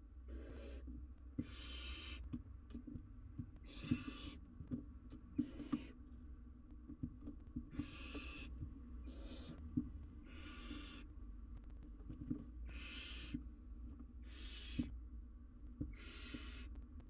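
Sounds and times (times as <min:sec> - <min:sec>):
owlets hissing begging calls: 0:01.4 - 0:02.2, 0:03.7 - 0:04.4, 0:07.8 - 0:08.5, 0:09.1 - 0:09.6, 0:10.3 - 0:11.0, 0:12.7 - 0:13.4, 0:14.3 - 0:14.9, 0:16.0 - 0:16.7
knocks and rustling: 0:11.6 - 0:12.6.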